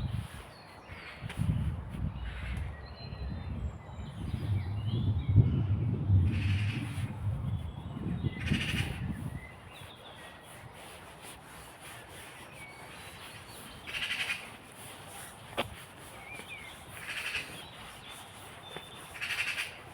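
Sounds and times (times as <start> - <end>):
low rumble: 3.1 - 9.0
bird rasping call: 13.9 - 14.5, 17.0 - 17.6, 19.2 - 19.8.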